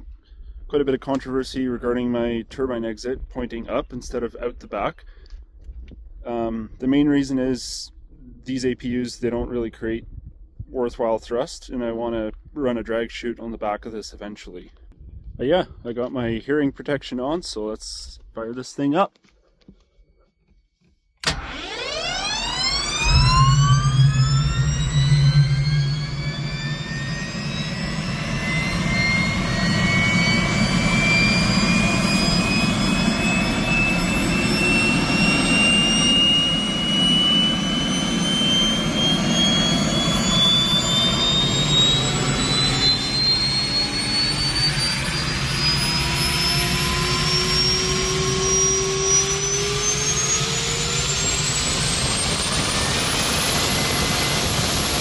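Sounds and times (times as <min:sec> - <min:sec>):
gas turbine whine spooling up: 0:21.2 - 0:55.0
turbine roar: 0:21.2 - 0:55.0.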